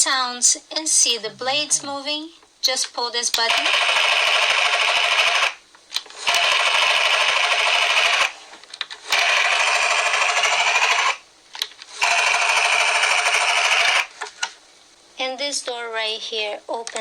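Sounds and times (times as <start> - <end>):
toy helicopter rotor sound effect: 3.4 - 5.6, 6.2 - 8.4, 9.0 - 11.2, 11.9 - 14.1.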